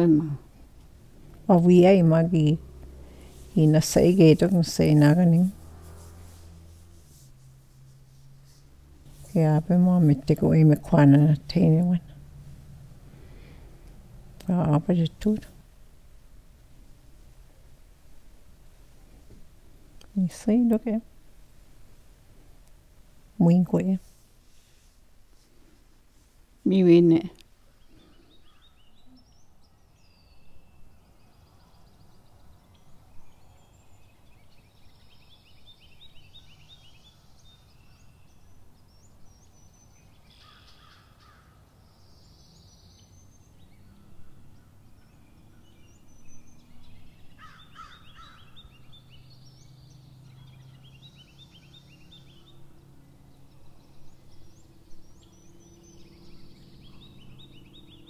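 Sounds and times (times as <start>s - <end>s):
bird chirps and trills: 27.8s - 58.0s.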